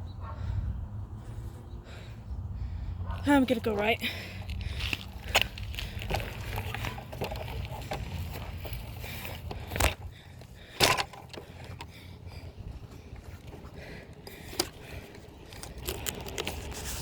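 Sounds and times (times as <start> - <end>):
wind on microphone: 0.0 - 3.2
bike tyres rumbling on pavement: 0.3 - 17.0.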